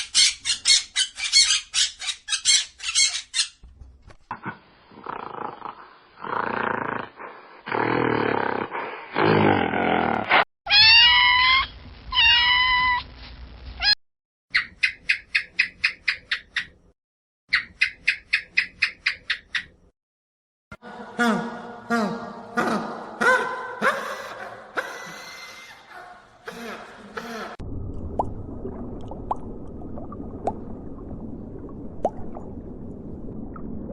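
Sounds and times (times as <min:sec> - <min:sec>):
rough animal cries: 0:10.7 - 0:13.1.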